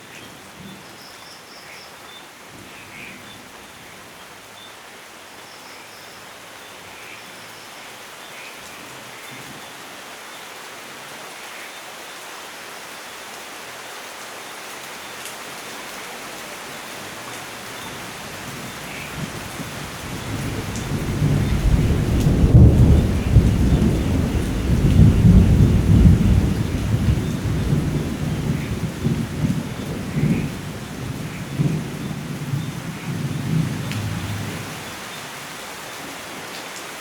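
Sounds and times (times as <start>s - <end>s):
rain hiss: 0.0s - 37.0s
thunder rumbling: 18.4s - 34.8s.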